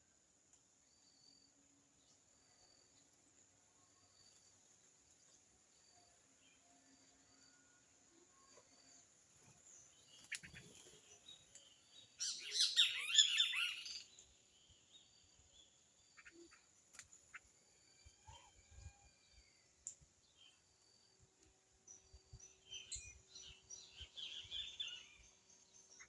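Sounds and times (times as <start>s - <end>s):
songbirds twittering: 8.3s - 26.0s
faint bird calls: 16.0s - 19.1s.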